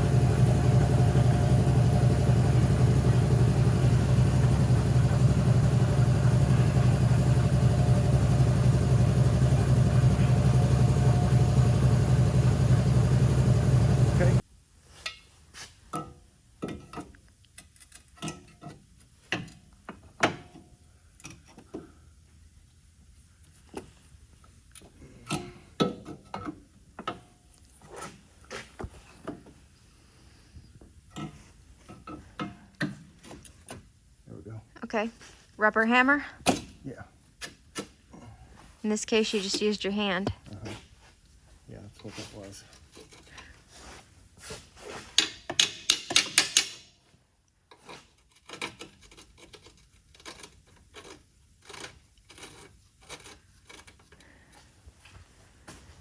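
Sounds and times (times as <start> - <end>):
engine humming: 0.0 - 14.4.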